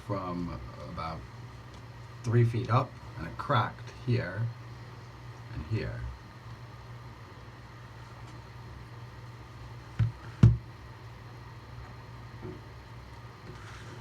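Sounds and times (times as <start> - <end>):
steady low hum: 0.0 - 14.0
hard knocks: 10.0 - 10.6.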